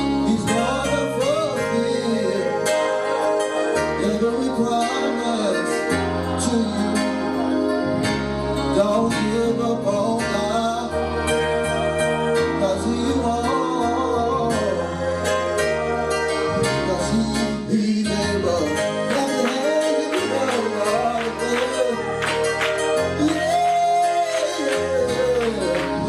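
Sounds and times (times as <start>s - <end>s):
bass notes: 0.0s - 26.0s
gospel band accompaniment: 0.0s - 26.0s
person singing: 0.0s - 26.0s.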